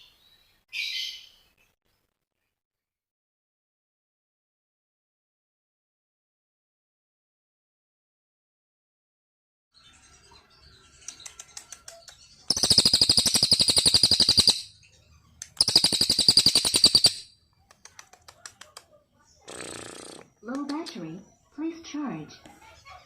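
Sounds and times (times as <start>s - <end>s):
songbird chips and trills: 10.7s - 18.6s.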